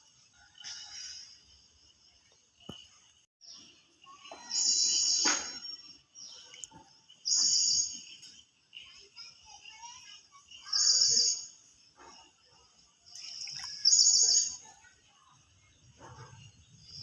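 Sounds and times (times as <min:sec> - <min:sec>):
faint bird chirps: 0:00.1 - 0:17.0
high trilled birdsong: 0:01.8 - 0:12.3, 0:13.1 - 0:14.9.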